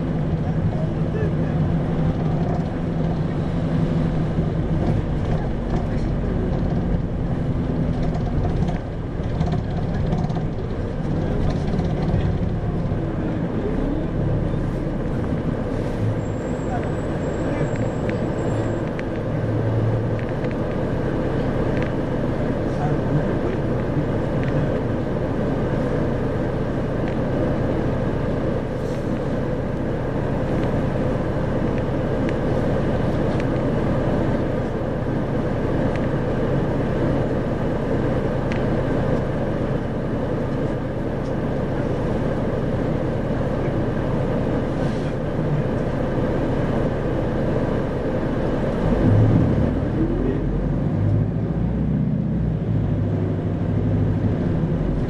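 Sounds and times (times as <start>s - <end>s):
bus diesel engine drone: 0.0s - 55.0s
road noise: 0.0s - 55.0s.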